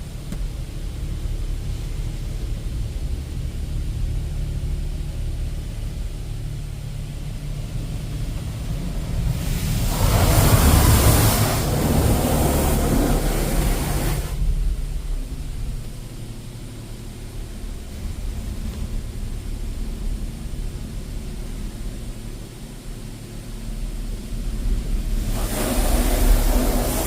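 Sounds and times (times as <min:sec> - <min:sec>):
car wash machinery rumble: 0:00.0 - 0:27.0
high-pressure water spray hissing: 0:09.0 - 0:14.4, 0:25.0 - 0:27.0.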